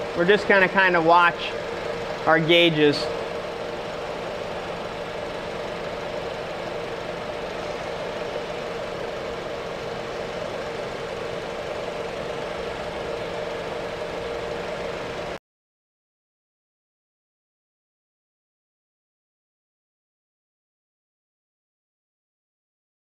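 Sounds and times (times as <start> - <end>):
car engine idling: 0.0 - 15.4
steady hum: 0.0 - 15.4.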